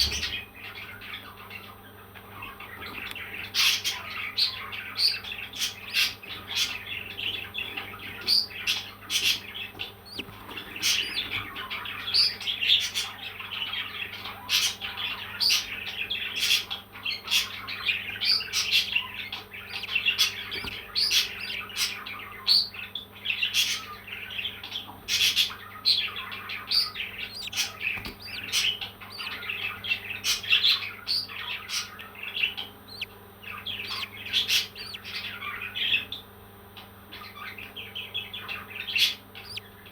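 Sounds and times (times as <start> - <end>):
parrots chirping: 3.5 - 15.7, 17.2 - 24.3, 25.1 - 36.0, 38.4 - 39.9.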